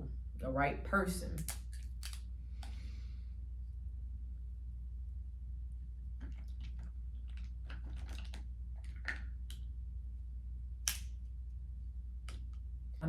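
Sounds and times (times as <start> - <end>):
steady low hum: 0.0 - 13.0
crunching and chewing crab: 6.1 - 9.7.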